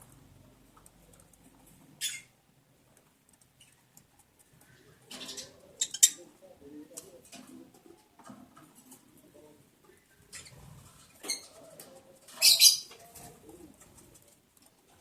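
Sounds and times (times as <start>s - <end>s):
soft low bird chattering: 3.3s - 7.3s
claws and feathers rustling: 7.0s - 15.0s.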